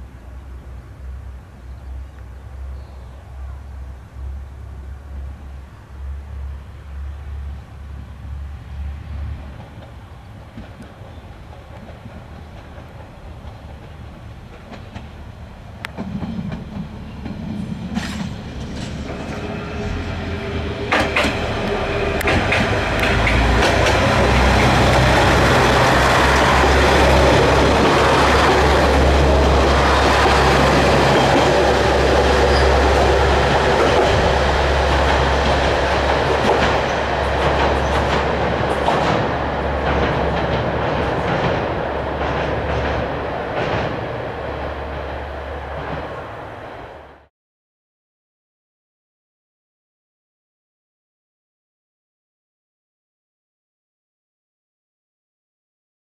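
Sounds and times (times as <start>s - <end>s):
diesel train engine drone: 0.0s - 47.3s
wheels clicking over rail joints: 9.6s - 19.4s, 20.9s - 46.2s.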